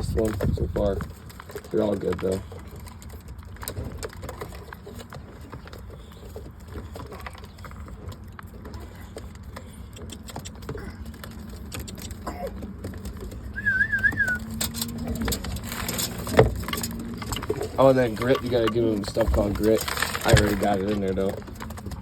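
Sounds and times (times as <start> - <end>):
pigeons cooing: 8.9 - 19.6
warbling whistle: 13.6 - 14.4.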